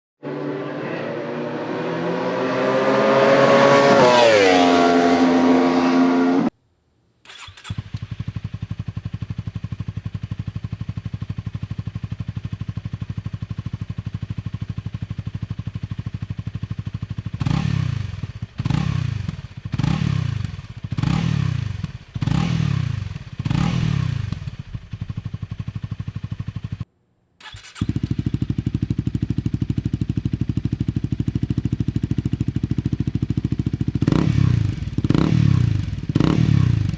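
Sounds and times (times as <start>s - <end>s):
motorcycle engine idling: 7.9s - 26.9s, 27.7s - 36.9s.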